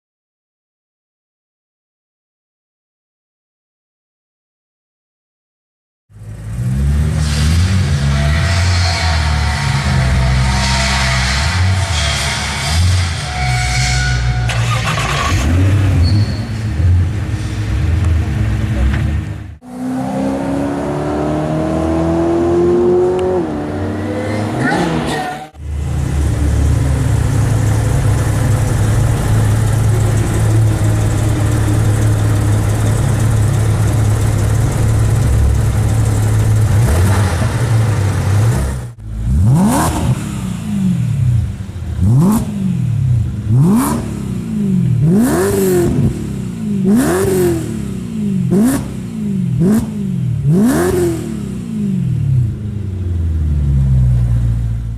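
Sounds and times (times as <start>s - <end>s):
engine throttle blips: 7.1s - 17.1s, 25.5s - 54.9s
car engine idling loudly: 25.6s - 39.3s.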